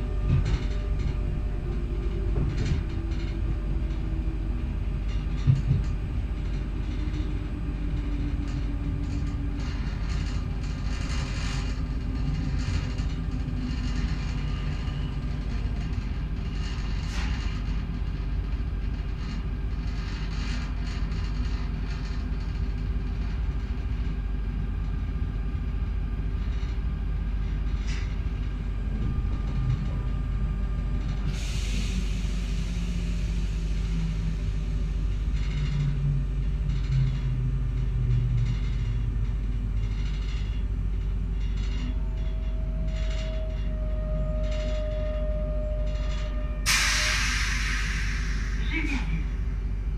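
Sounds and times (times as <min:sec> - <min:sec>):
train running gear rumble: 0:00.0 - 0:49.9
short hiss: 0:46.7 - 0:48.6.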